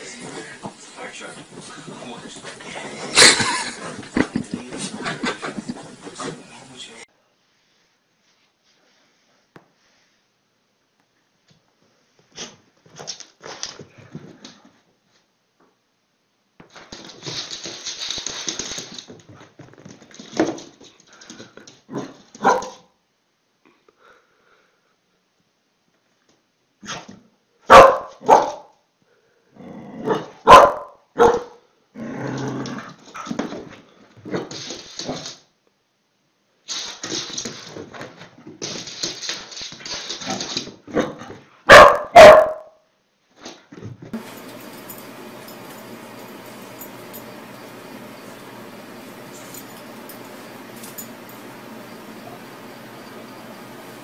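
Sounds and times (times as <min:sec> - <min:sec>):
rustling and scuffling: 0:00.0 - 0:07.0, 0:16.6 - 0:22.5, 0:43.4 - 0:54.0
dog barking: 0:22.4 - 0:22.9, 0:27.7 - 0:28.7, 0:30.1 - 0:31.6, 0:41.7 - 0:42.7.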